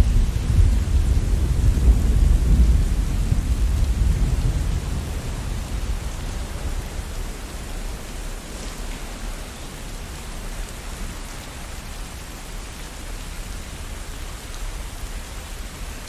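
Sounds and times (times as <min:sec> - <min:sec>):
low rumble of thunder: 0:00.0 - 0:11.4
steady rain falling: 0:00.0 - 0:16.0.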